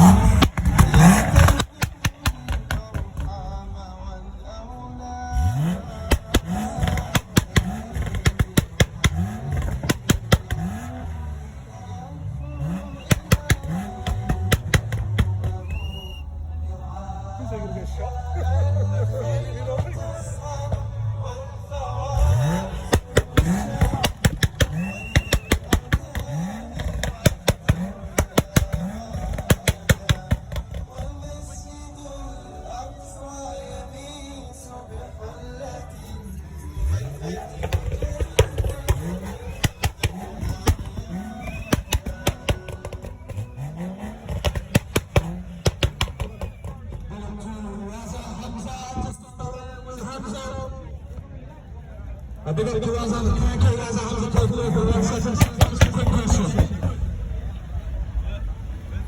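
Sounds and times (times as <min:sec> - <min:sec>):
exhaust pops and bangs: 0:00.0 - 0:03.7, 0:05.4 - 0:11.7, 0:12.6 - 0:16.2, 0:22.2 - 0:31.6, 0:36.8 - 0:49.2, 0:52.8 - 0:57.7
car engine revving: 0:00.0 - 0:51.2, 0:52.1 - 0:59.0.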